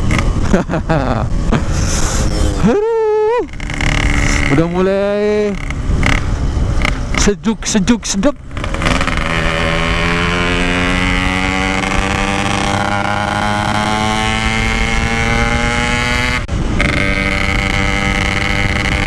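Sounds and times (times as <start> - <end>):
two-stroke motorcycle engine revving: 3.5 - 7.3, 8.4 - 19.0.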